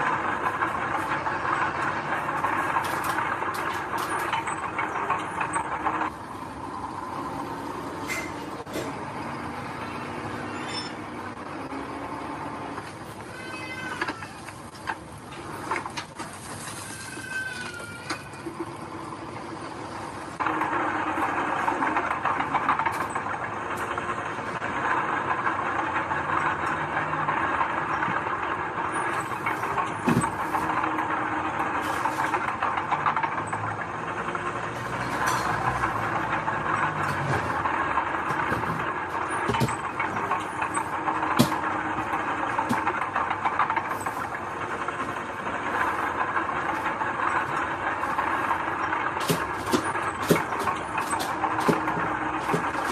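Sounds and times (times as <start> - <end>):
earthmoving machinery running: 0.0 - 52.9
sharp clanks and knocks: 34.7 - 44.4, 47.4 - 52.9.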